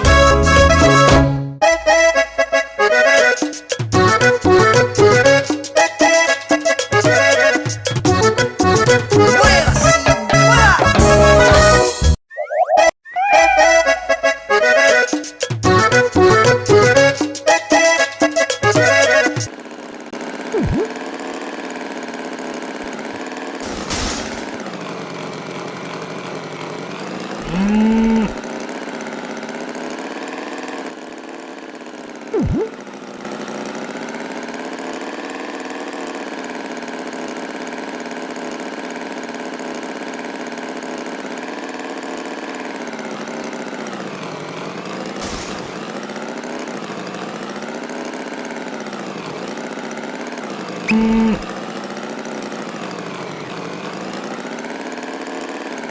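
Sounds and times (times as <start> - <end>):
engine running: 0.0 - 11.8, 13.5 - 55.9
cow mooing: 27.4 - 28.4.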